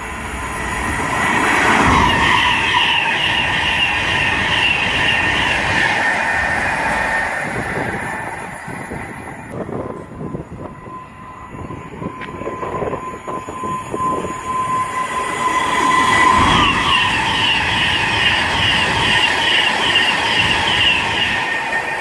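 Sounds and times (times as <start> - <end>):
electric train passing at speed: 0.0 - 22.0
high ringing: 9.8 - 22.0.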